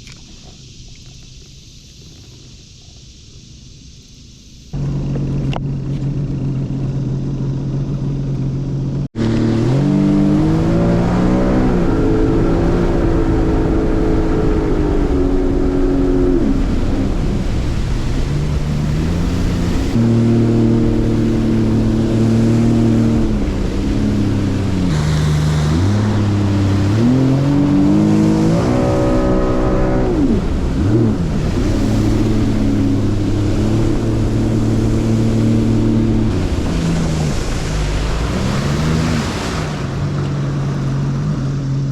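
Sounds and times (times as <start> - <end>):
low engine drone: 0.0 - 41.9
boat engine revving: 4.7 - 41.9.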